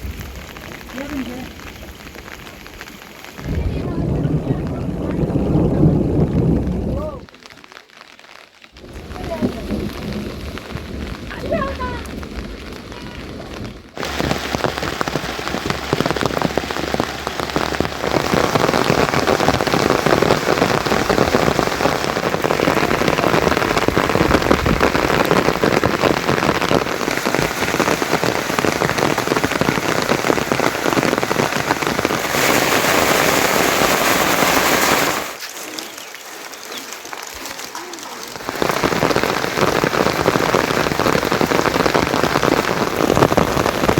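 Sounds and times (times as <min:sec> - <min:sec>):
heavy rain pattering: 0:00.0 - 0:43.9.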